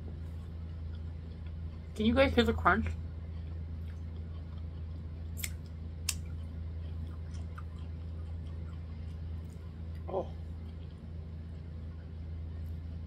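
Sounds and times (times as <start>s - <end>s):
chewing corn on the cob: 0.0s - 13.0s
steady low hum: 0.0s - 13.0s.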